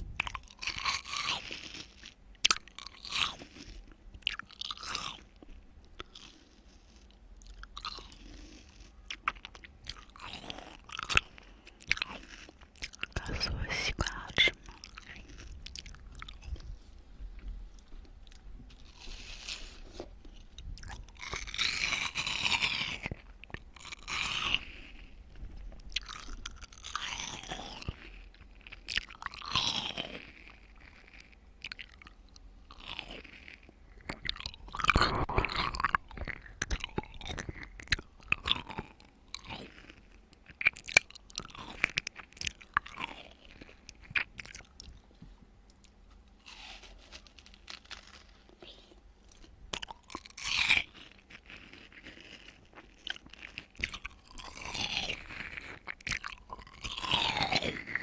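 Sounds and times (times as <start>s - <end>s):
chewing and crunching watermelon: 0.0s - 58.0s
juicy mouth smacks: 34.0s - 38.4s.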